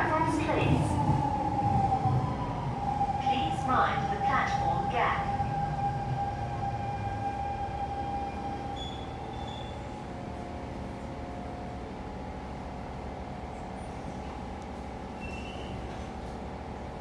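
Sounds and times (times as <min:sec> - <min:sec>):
metro train running noise: 0:00.0 - 0:17.0
train whine: 0:00.0 - 0:17.0.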